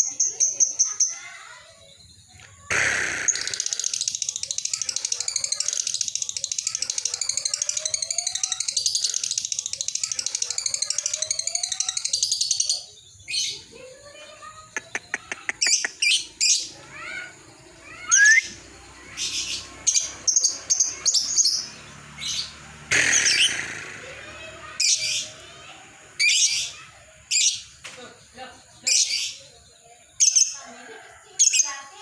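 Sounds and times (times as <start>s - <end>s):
lovebird chirping: 2.2s - 13.6s.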